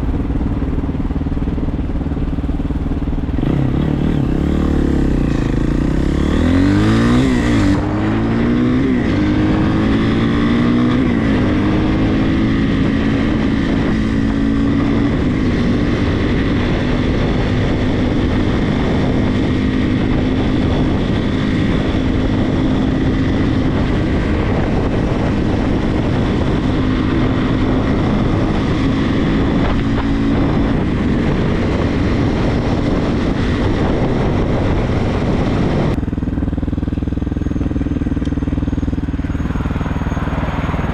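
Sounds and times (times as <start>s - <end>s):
motorcycle engine accelerating: 0.0s - 40.9s
wind and road noise: 0.0s - 40.9s.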